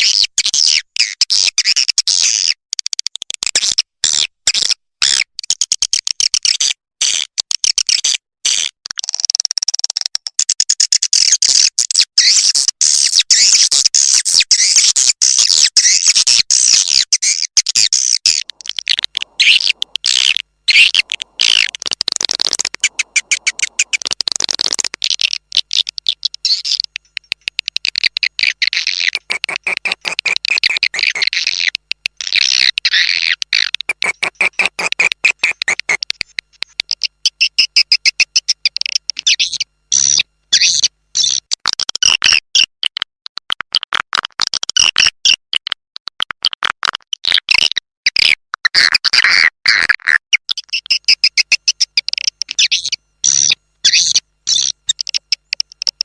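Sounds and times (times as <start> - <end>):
high-pitched bird twittering: 16.9 - 36.0, 36.9 - 41.4, 50.5 - 56.0.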